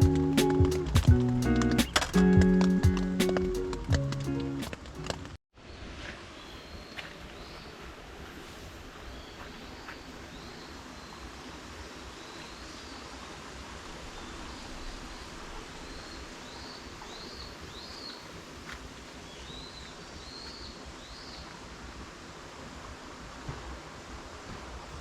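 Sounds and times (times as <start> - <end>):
background hiss: 0.0 - 25.0
small bird chirping: 0.4 - 2.8.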